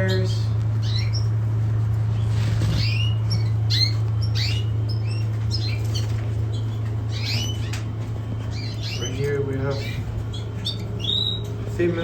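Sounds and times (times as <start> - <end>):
canaries chirping: 0.0 - 12.0
steady low hum: 0.0 - 12.0.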